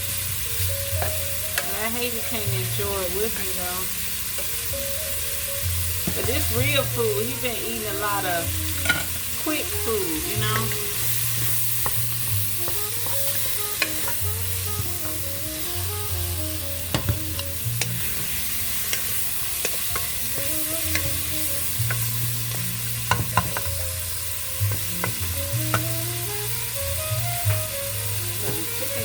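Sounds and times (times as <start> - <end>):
chicken sizzling in a pan: 0.0 - 29.0
utensil clicking against pan: 16.9 - 23.8, 24.7 - 25.9.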